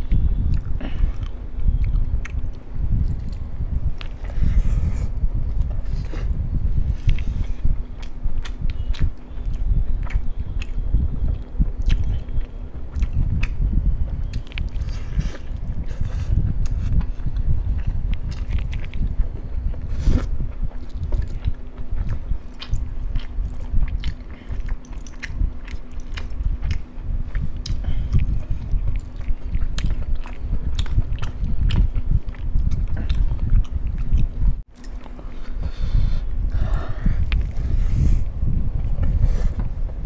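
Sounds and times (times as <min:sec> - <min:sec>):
man chewing food: 0:00.0 - 0:40.0.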